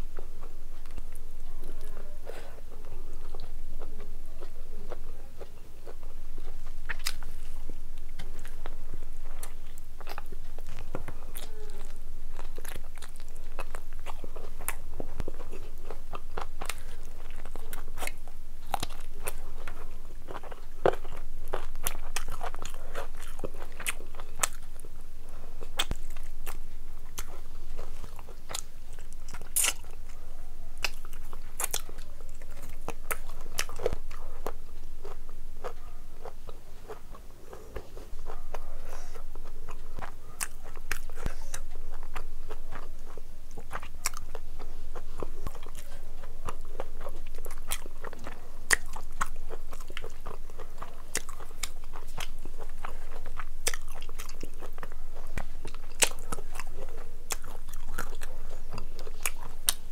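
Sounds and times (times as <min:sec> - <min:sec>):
person chewing food: 0:00.0 - 0:59.9
lip and tongue clicks: 0:45.2 - 0:56.7.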